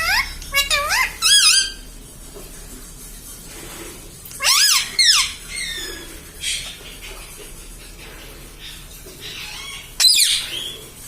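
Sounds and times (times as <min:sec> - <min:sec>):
parakeet rasp: 0:00.0 - 0:01.8, 0:04.4 - 0:10.8
parakeet calling: 0:00.0 - 0:01.9, 0:04.4 - 0:07.0, 0:08.7 - 0:10.8.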